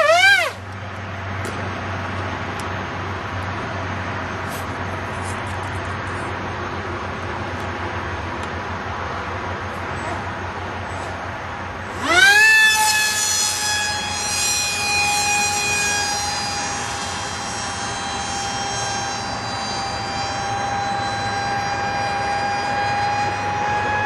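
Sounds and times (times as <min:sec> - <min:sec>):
electric motor and propeller whine: 0:00.0 - 0:24.0.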